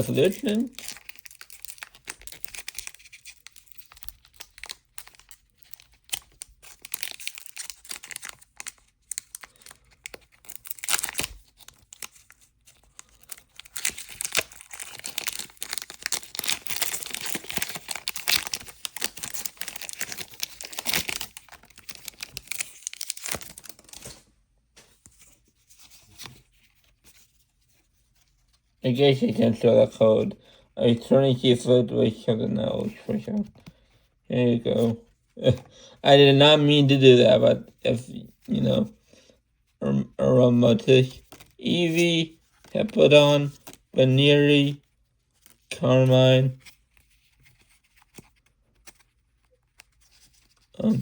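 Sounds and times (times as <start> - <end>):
foil wrapper tearing and crinkling: 0.0 - 24.3, 40.8 - 44.0, 46.6 - 50.9.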